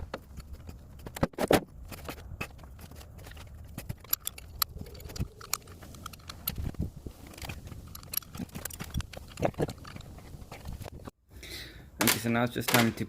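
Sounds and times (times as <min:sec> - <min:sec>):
metal tools clinking: 0:01.9 - 0:10.9.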